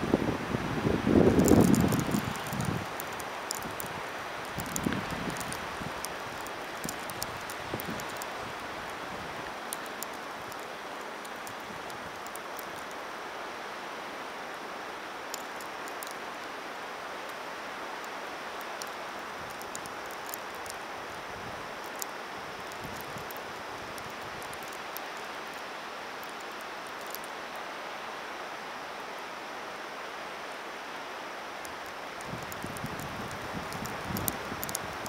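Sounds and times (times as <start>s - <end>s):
wind gusts buffeting microphone: 0.0s - 9.5s, 32.2s - 35.0s
snowstorm wind hiss: 0.0s - 35.0s
faint fine ticks: 4.5s - 8.3s, 9.7s - 13.0s, 15.3s - 16.2s, 26.2s - 27.4s, 31.6s - 35.0s.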